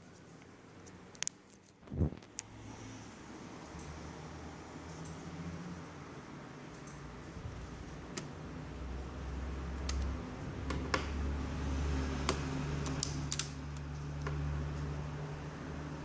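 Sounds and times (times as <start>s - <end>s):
small laptop parts clicking: 9.8s - 11.1s, 12.2s - 14.4s.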